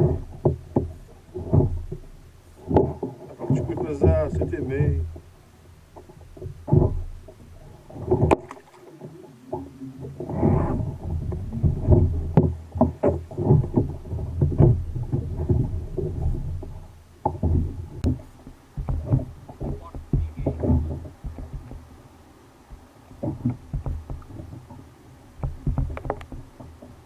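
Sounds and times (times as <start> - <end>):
knocks and bumps on kayak: 0.0 - 27.0.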